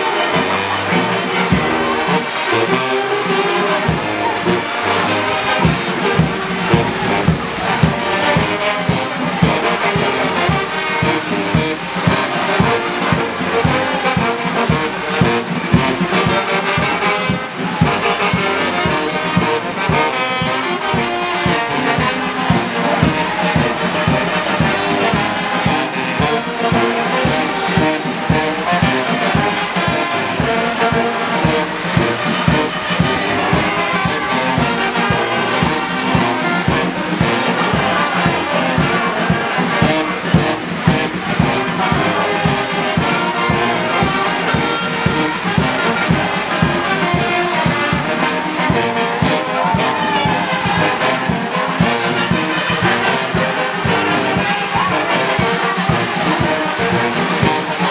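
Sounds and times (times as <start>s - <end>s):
brass band music: 0.0s - 57.9s
steady beat: 0.0s - 57.9s.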